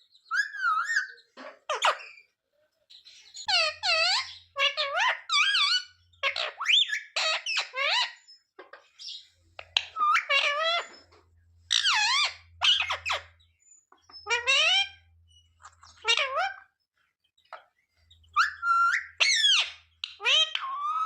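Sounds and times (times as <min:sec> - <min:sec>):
parakeet squawking: 0:00.3 - 0:02.3, 0:03.3 - 0:08.3, 0:09.0 - 0:11.0, 0:11.7 - 0:13.4, 0:14.1 - 0:16.8, 0:18.2 - 0:21.0.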